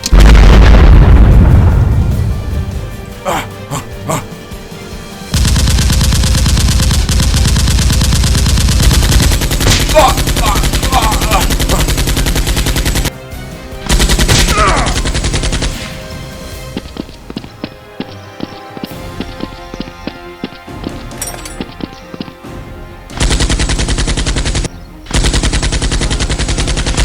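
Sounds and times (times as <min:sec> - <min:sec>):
rapid machine-gun fire: 0:05.4 - 0:13.1, 0:13.9 - 0:16.0, 0:23.2 - 0:27.0.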